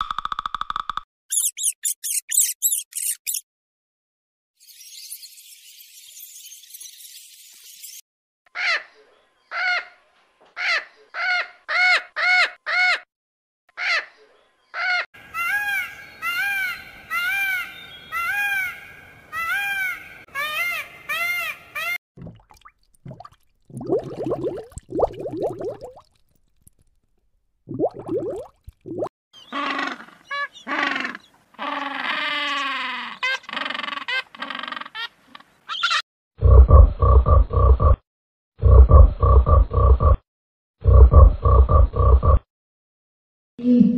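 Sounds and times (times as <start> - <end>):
outdoor background noise: 4.6 - 12.8
macaws squawking: 10.6 - 13.0, 14.7 - 22.0, 29.4 - 36.0
peacock calling: 14.7 - 22.0, 29.4 - 36.0.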